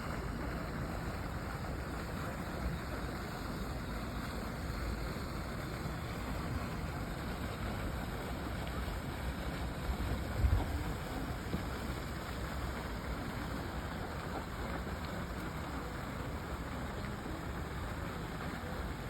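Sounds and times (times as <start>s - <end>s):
wind buffeting microphone: 9.8s - 11.7s.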